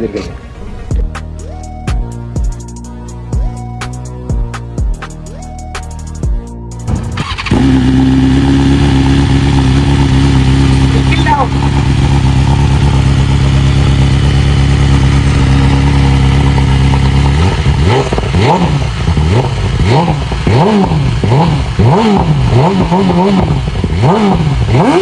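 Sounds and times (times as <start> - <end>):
quick throttle blips: 6.8 - 14.2
motorcycle engine idling: 6.8 - 25.0.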